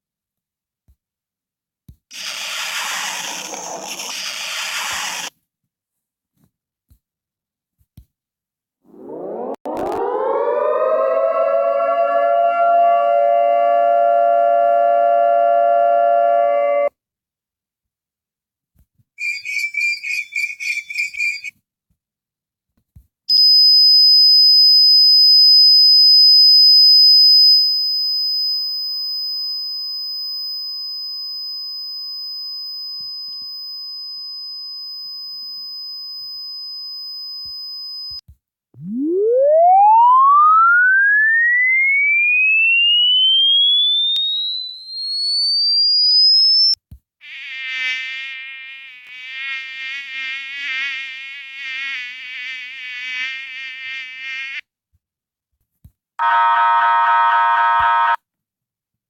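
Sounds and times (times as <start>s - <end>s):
siren winding up: 2.1s - 5.3s, 8.9s - 16.9s, 38.8s - 54.6s
buzzy rising tone: 8.9s - 13.4s, 38.8s - 44.0s
piercing high-pitched tone: 38.8s - 54.6s.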